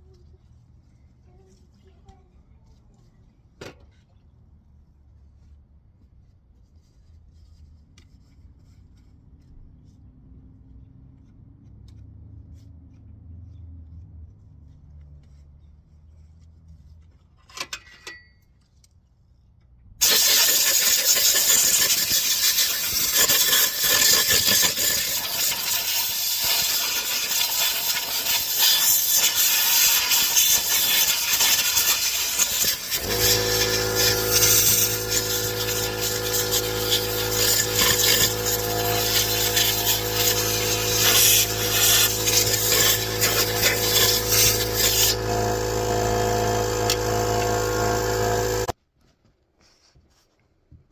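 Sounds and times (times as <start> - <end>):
loud steady mechanical noise: 20.0 - 48.7
motor humming: 29.3 - 48.7.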